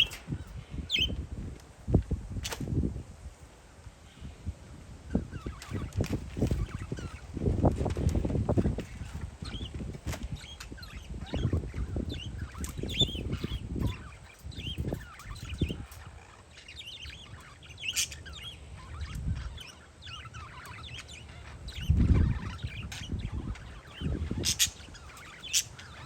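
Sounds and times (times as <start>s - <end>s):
parakeets chirping: 0.0s - 1.2s, 5.1s - 26.0s
wind buffeting the microphone: 0.0s - 16.3s, 17.0s - 26.0s.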